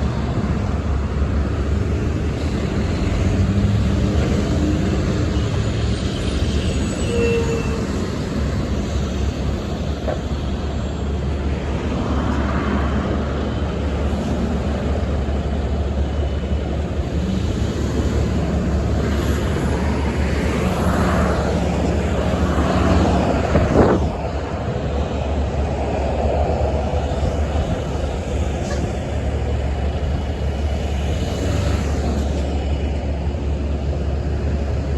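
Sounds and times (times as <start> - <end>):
low rumble of road vehicles: 0.0 - 34.9
vehicle passing by: 30.6 - 33.2.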